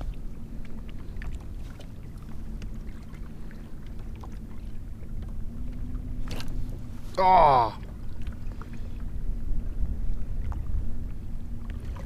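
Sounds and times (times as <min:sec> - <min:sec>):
water lapping against hull: 0:00.0 - 0:12.0
wind rumble on microphone: 0:00.0 - 0:12.0.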